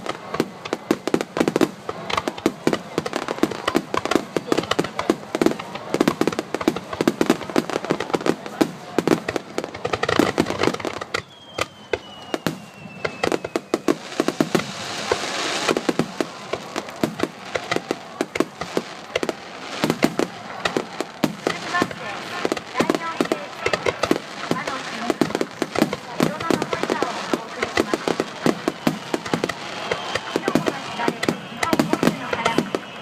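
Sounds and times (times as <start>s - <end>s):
firework hiss: 0.0s - 33.0s
fireworks bangs and pops: 0.0s - 33.0s
descending firework whistle: 10.3s - 33.0s.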